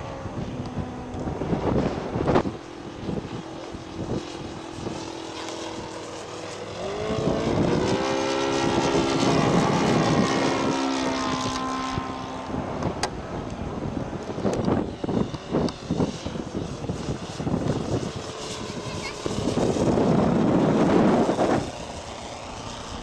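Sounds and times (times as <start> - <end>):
model airplane engine passing overhead: 0.0 - 23.0.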